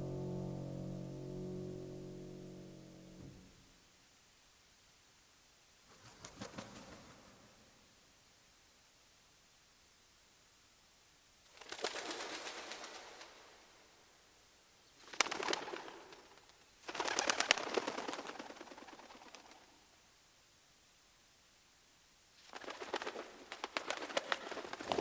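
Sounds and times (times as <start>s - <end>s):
bird wings flapping: 5.9s - 7.4s, 11.6s - 13.3s, 15.0s - 19.7s, 22.4s - 25.0s.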